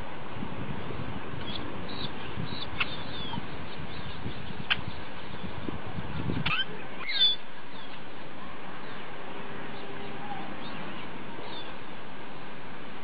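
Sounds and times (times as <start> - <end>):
steady outdoor hiss: 0.0 - 13.0
high bird chirps: 1.4 - 5.5, 6.2 - 8.0.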